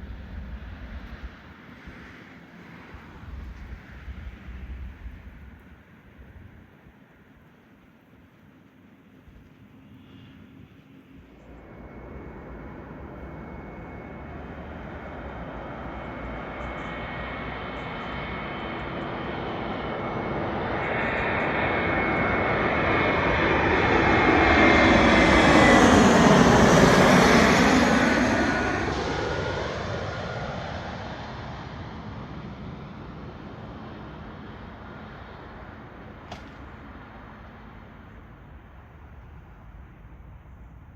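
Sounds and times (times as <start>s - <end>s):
jet engines passing by: 0.0s - 40.9s
high engine whine: 8.6s - 40.9s.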